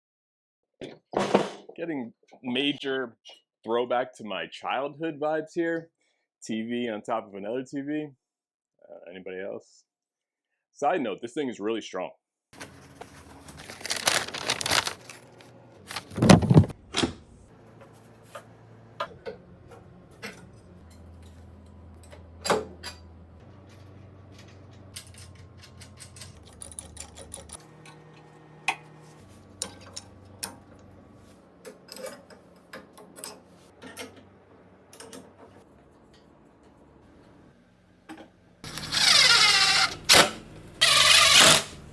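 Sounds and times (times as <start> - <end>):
tools and metal clinking: 17.8 - 28.9, 29.5 - 30.9, 31.6 - 34.3, 34.9 - 36.3.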